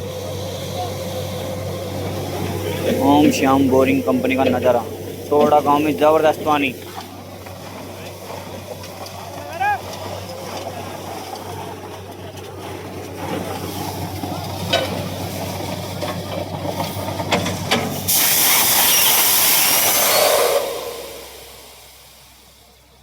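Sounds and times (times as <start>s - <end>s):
drilling rig humming: 0.0s - 23.0s
compressed air and water hissing: 13.2s - 22.8s.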